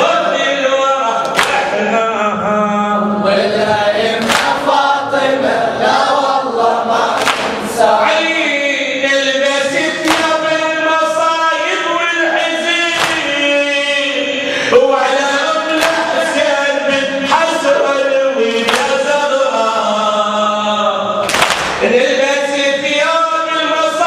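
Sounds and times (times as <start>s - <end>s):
male chorus chanting: 0.0s - 24.0s
sharp beat striking: 10.0s - 10.6s.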